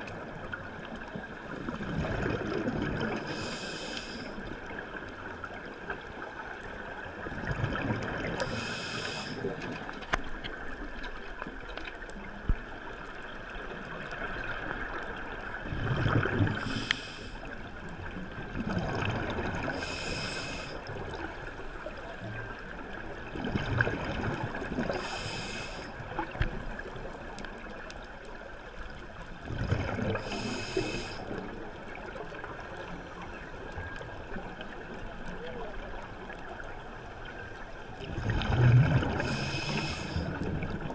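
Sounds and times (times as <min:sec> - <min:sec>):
exhaled bubbles gurgling: 0:00.0 - 0:10.0, 0:13.5 - 0:28.1, 0:28.9 - 0:40.9
steady water hiss: 0:00.0 - 0:40.9
diver inhaling through regulator: 0:03.2 - 0:04.4, 0:08.4 - 0:09.6, 0:16.5 - 0:17.5, 0:19.7 - 0:21.8, 0:24.9 - 0:26.0, 0:30.0 - 0:31.3, 0:39.1 - 0:40.4.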